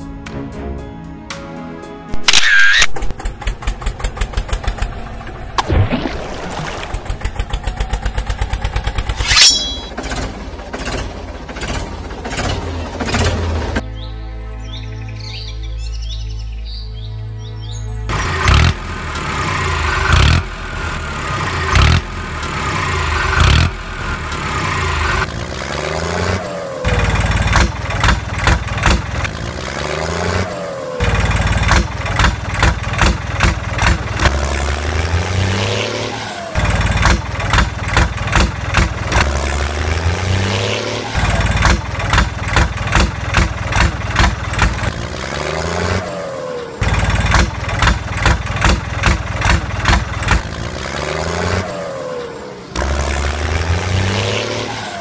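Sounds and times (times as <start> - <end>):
truck engine idling and revving: 0.0 - 14.1, 17.6 - 55.0.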